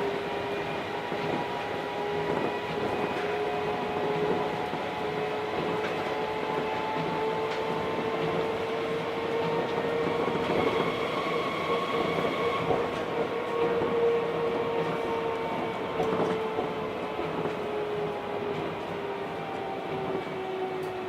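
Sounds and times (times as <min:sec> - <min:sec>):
monorail motor whine: 0:00.0 - 0:21.0.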